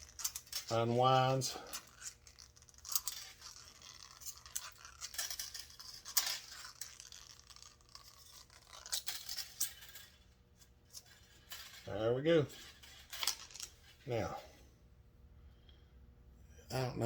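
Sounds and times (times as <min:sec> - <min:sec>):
steel spring scraping and rustling: 0:00.0 - 0:14.7.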